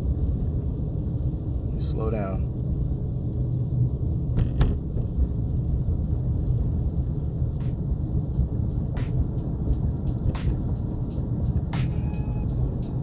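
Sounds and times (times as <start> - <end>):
car rumbling on snowy road: 0.0 - 13.0.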